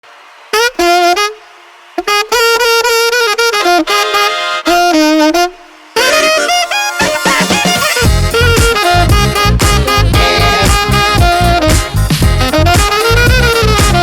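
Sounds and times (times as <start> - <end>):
saxophone-like wind instrument: 0.5 - 14.0
swing band accompaniment: 6.0 - 14.0.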